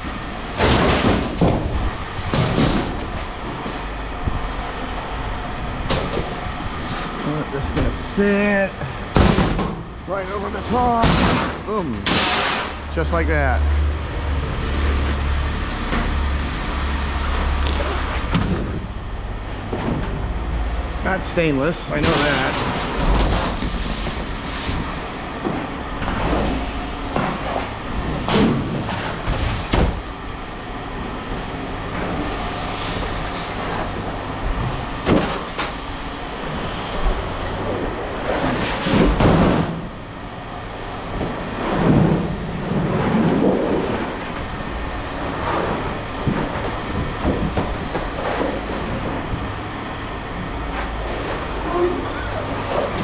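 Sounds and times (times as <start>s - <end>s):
steady low hum: 0.0s - 53.0s
scrap metal clanking: 10.4s - 13.1s.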